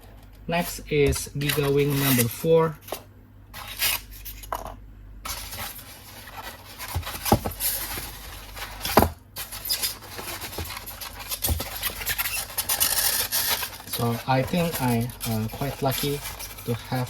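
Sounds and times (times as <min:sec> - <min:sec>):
toy rubbing on styrofoam packaging: 0:05.3 - 0:17.0.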